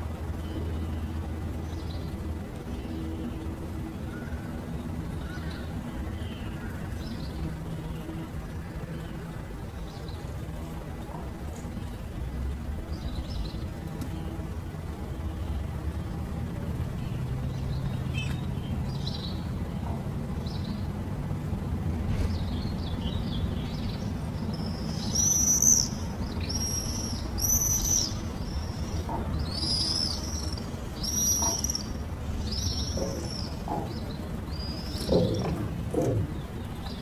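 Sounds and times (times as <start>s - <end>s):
high-pitched bird calls: 24.5s - 37.0s.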